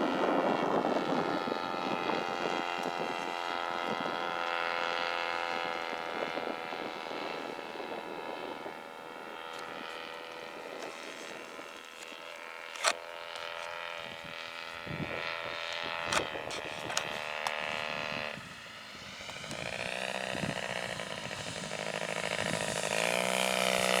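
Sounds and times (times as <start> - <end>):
small aircraft engine running: 0.0 - 24.0
sharp clicks: 10.7 - 13.7, 15.6 - 17.7.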